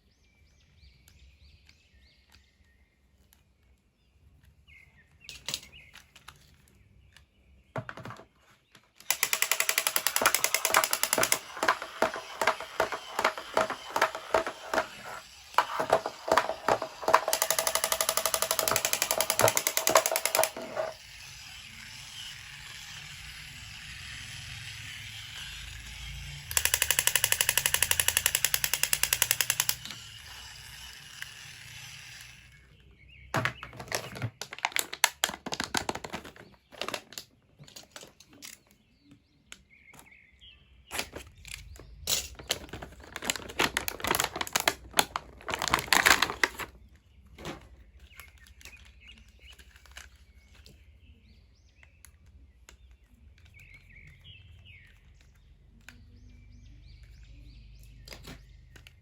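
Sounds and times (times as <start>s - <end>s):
rapid rattle of packaging: 9.1s - 21.0s, 33.4s - 37.2s, 42.3s - 46.8s
plastic and cardboard crinkles: 33.4s - 37.2s, 42.4s - 50.6s.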